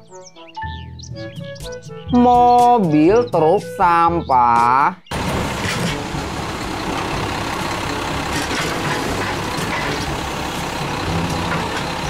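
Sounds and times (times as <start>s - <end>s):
truck engine running: 5.1s - 12.0s.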